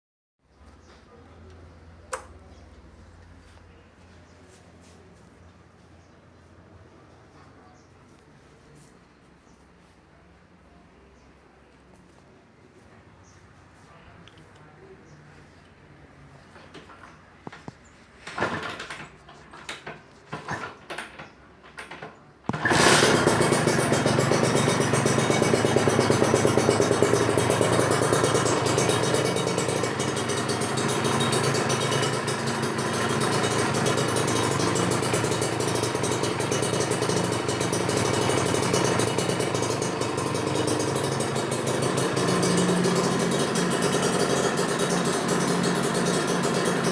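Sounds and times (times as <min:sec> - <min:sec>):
motorcycle engine cranking: 0:18.2 - 0:46.9
motorcycle engine idling: 0:22.5 - 0:46.9.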